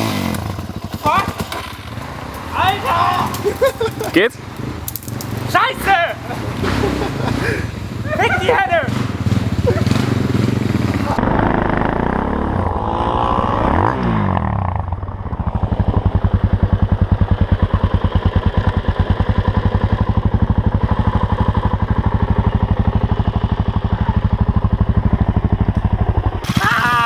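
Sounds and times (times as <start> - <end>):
motorcycle engine idling: 0.0 - 5.6, 6.2 - 12.4, 14.9 - 27.0.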